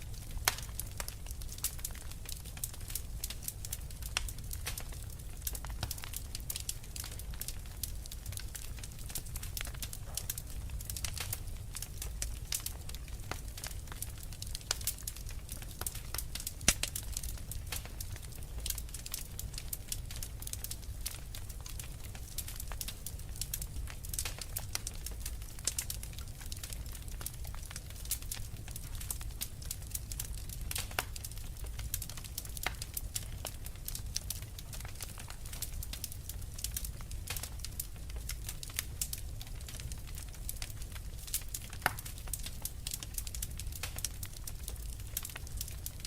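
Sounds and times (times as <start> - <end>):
low rumble of flames: 0.0 - 46.0
wood fire crackling: 0.0 - 46.0.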